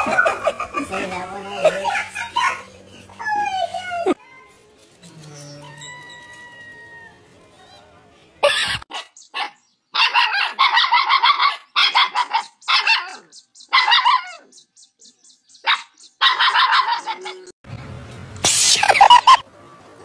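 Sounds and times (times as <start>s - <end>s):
animal yelp: 5.2s - 7.2s.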